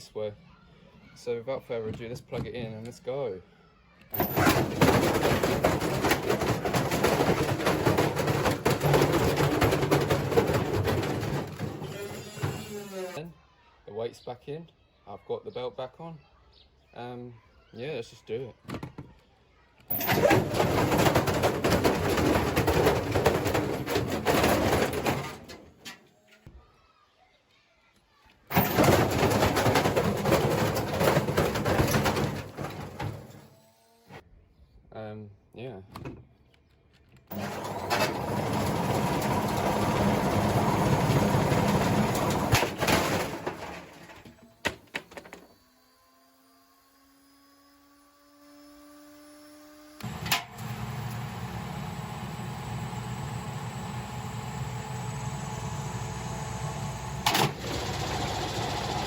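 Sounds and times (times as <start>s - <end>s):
washing machine banging and rattling: 4.2s - 12.8s, 19.9s - 26.0s, 28.5s - 33.5s, 37.3s - 45.4s, 57.3s - 59.0s.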